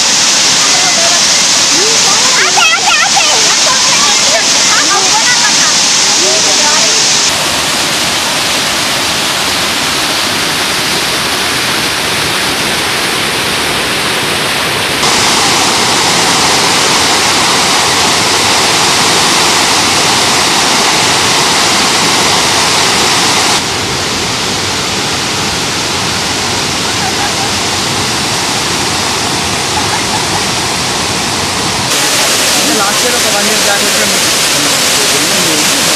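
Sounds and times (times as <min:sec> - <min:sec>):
waterfall roaring: 0:00.0 - 0:35.9.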